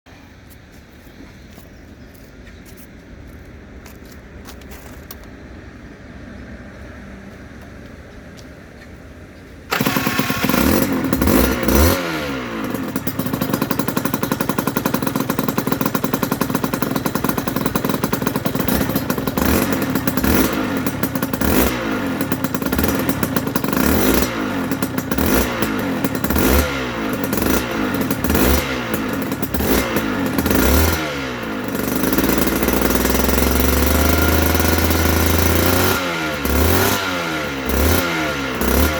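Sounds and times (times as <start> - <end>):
motorcycle engine revving: 9.7 - 38.9.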